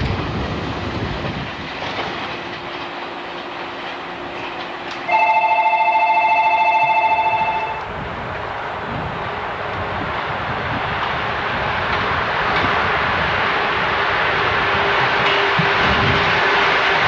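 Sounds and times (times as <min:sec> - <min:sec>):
trains: 0:00.0 - 0:17.0
electric bell ringing: 0:05.1 - 0:07.9.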